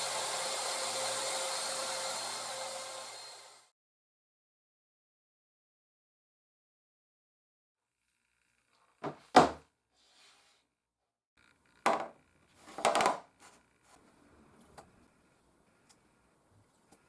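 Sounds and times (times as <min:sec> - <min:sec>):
wooden parts knocking on workbench: 0:09.0 - 0:09.6, 0:11.9 - 0:13.2.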